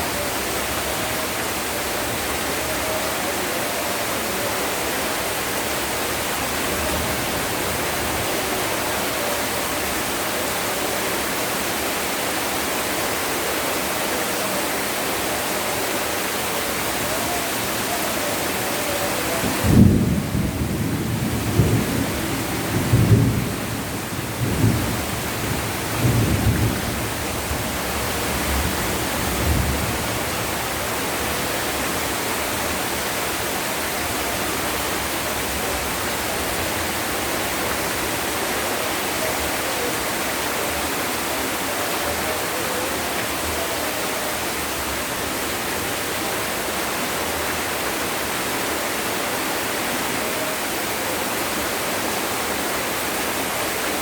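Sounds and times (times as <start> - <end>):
heavy rain falling: 0.0 - 54.0
low thunder rumbles: 19.5 - 30.6.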